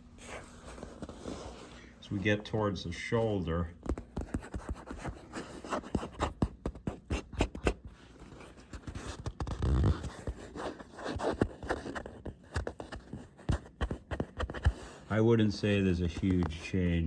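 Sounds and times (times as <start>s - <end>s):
hands rubbing leather jacket: 4.0s - 17.0s.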